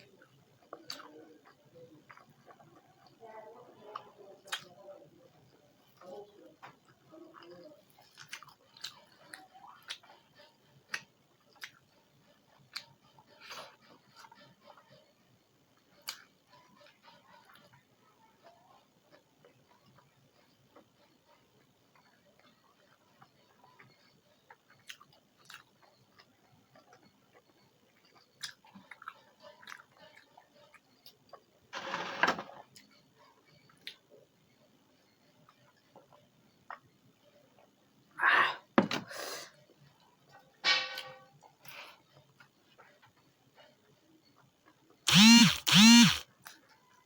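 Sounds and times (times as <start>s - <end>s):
close chewing: 0.0s - 3.2s, 5.8s - 15.0s, 15.8s - 31.5s.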